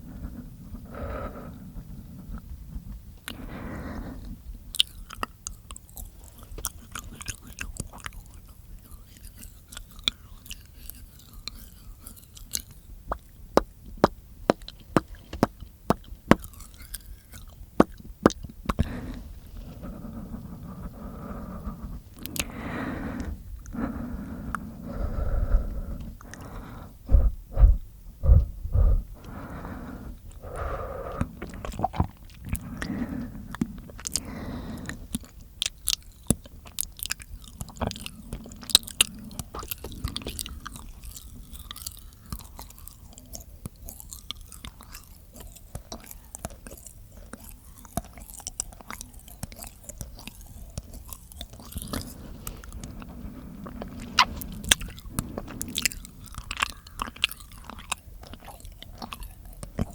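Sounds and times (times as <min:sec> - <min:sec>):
wet mouth clicks and smacks: 0:04.7 - 0:19.0, 0:35.1 - 0:59.9
heavy low thumps: 0:27.0 - 0:29.3.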